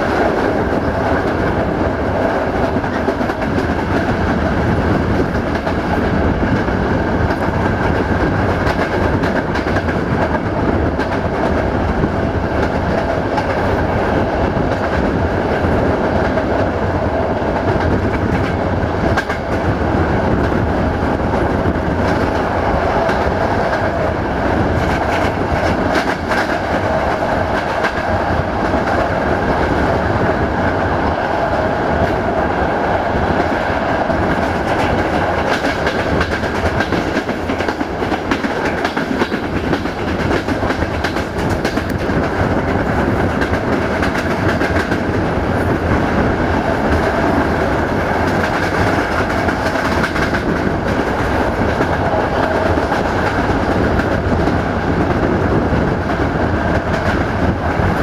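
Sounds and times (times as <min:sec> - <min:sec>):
wind: 0:00.0 - 0:58.0
wheels clicking over rail joints: 0:33.4 - 0:58.0.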